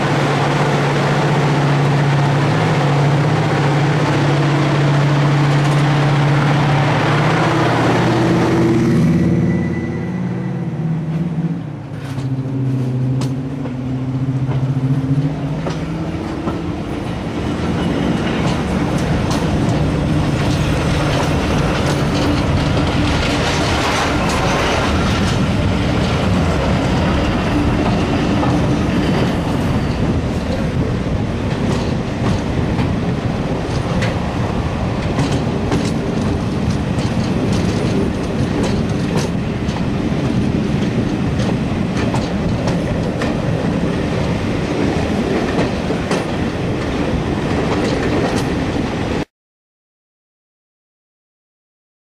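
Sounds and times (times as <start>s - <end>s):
train running noise: 0.0s - 49.3s
wheels clicking over rail joints: 14.4s - 48.8s.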